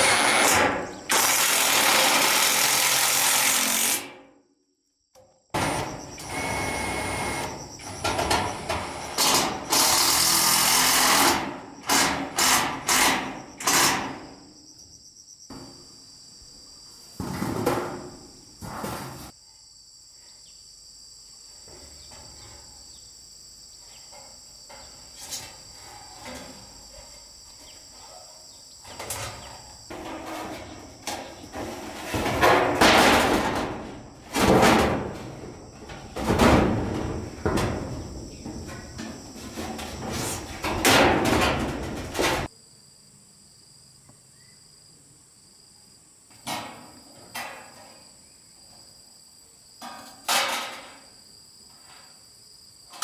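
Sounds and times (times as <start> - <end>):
insects chirping: 0.0 - 3.4, 4.8 - 53.0
power tool burst: 0.0 - 4.0, 5.6 - 14.0
scraping: 28.9 - 42.5.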